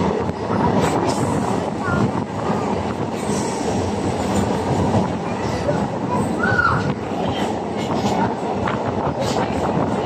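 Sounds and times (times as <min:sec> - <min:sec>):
train rumbling through tunnel: 0:00.0 - 0:10.0.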